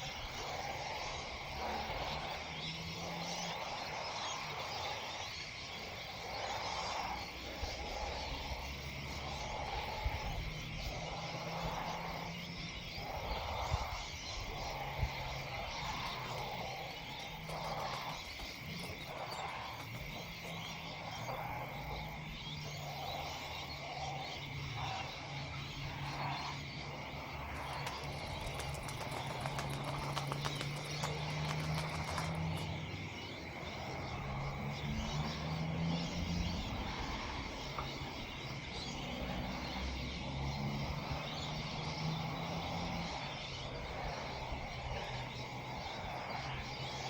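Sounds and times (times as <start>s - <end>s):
constant hiss: 0.0s - 35.3s
low drone: 0.0s - 47.0s.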